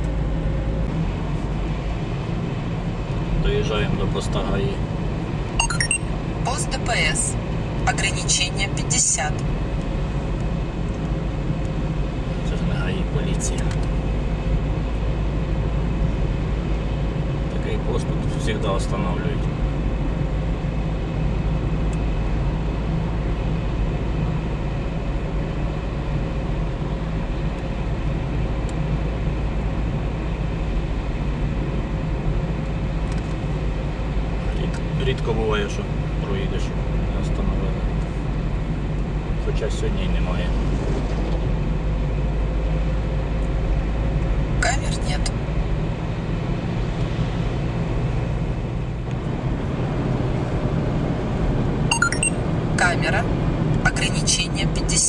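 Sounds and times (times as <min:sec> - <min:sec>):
car engine and tyre drone: 0:00.0 - 0:06.5, 0:45.2 - 0:53.8.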